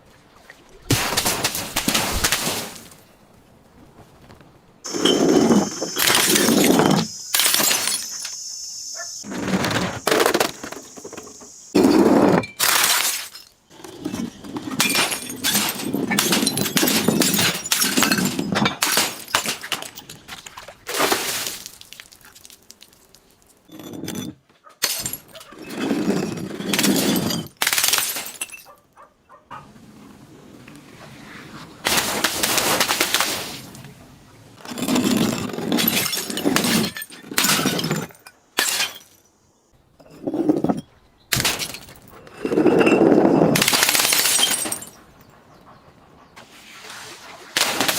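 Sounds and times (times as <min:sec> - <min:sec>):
glass bottles crushing and breaking: 0:00.9 - 0:03.0, 0:04.9 - 0:08.5, 0:11.7 - 0:28.8, 0:34.6 - 0:39.3, 0:40.0 - 0:45.0.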